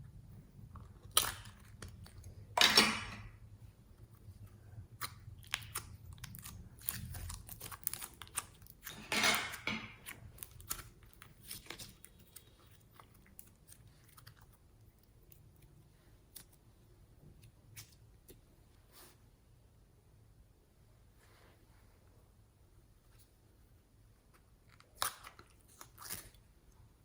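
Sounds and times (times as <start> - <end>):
crackly slime squelch: 0.2 - 2.6, 3.3 - 9.0, 9.9 - 19.2, 23.9 - 27.0
slime squishing and clicking: 5.0 - 8.9.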